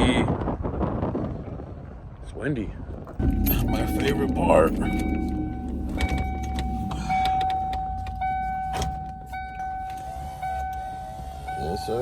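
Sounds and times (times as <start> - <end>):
engine and road rumble: 0.1 - 12.0
high-pitched whine: 3.2 - 11.9.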